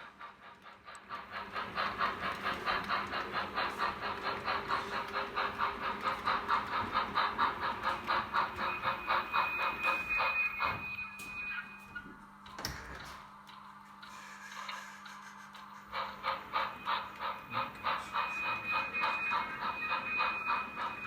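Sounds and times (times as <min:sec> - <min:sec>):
model train running: 0:00.0 - 0:11.7, 0:12.4 - 0:21.0.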